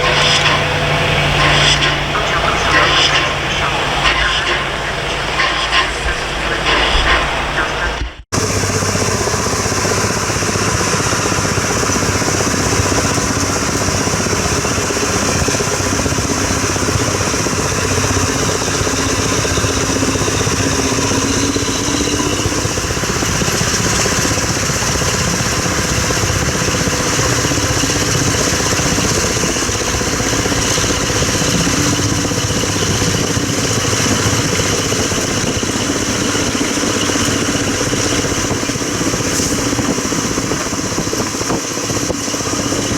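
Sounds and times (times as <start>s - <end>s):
train running rumble and clatter: 0.0s - 42.9s.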